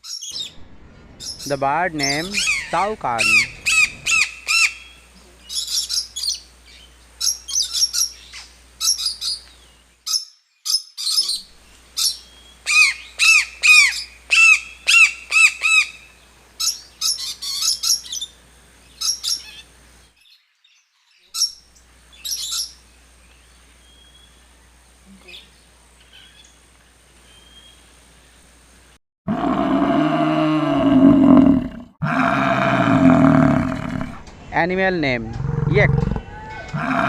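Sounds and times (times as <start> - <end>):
higher chattering notes: 0.5 - 4.4
toucan calling: 1.2 - 6.5, 11.0 - 18.3.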